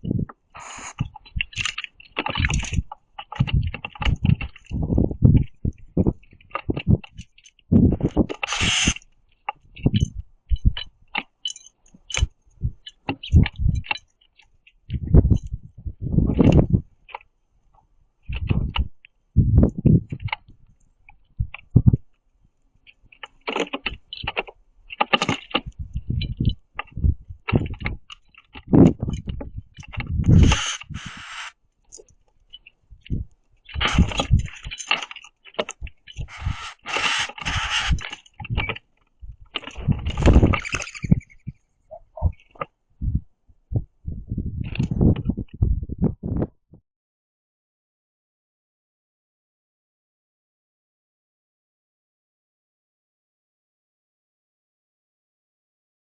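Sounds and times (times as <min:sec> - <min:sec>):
birds pecking on feeder tray: 0:29.3 - 0:31.5, 0:33.7 - 0:38.8
birds scuffling: 0:29.8 - 0:41.5.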